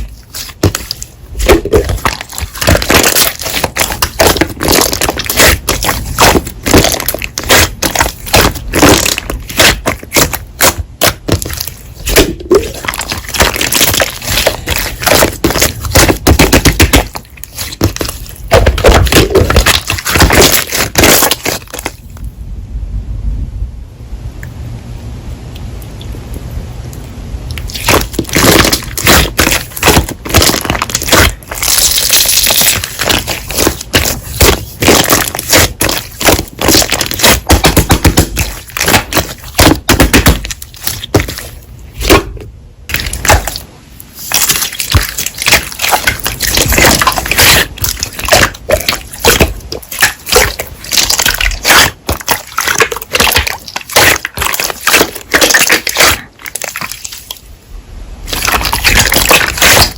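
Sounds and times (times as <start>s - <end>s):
slime crackling and popping: 0.0s - 22.2s, 27.5s - 57.4s, 58.3s - 59.9s.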